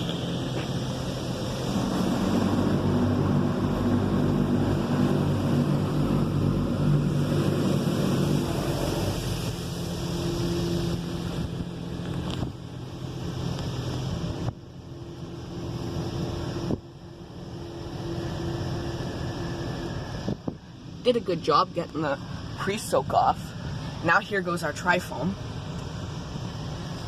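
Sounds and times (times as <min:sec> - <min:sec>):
high-pressure water jets spraying: 0:00.0 - 0:16.7
car wash machinery hum: 0:00.0 - 0:27.0.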